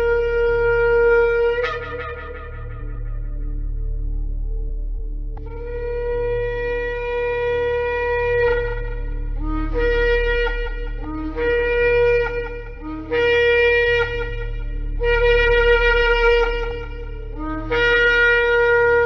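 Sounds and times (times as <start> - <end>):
shofar blowing: 0.0 - 4.2, 5.4 - 19.0.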